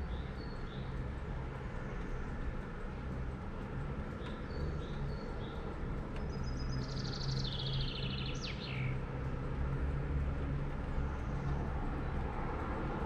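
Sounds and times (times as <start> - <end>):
songbird singing: 0.0 - 3.1, 3.8 - 9.2.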